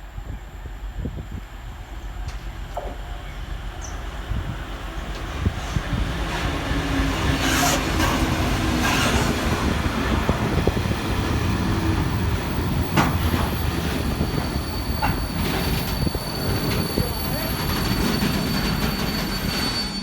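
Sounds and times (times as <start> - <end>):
freight train wheels rumbling: 0.0 - 20.0
wheel squeal: 7.1 - 9.6, 12.4 - 20.0.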